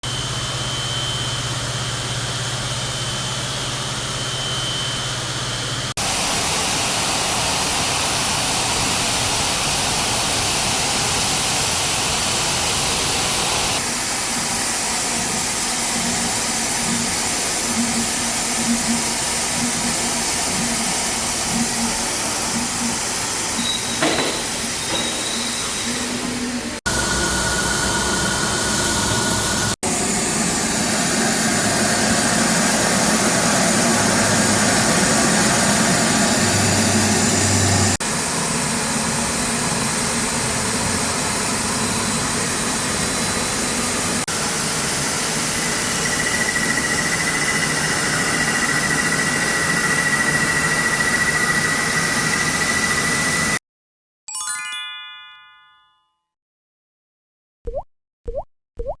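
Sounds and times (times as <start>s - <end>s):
short ringing chime: 54.3s - 56.3s.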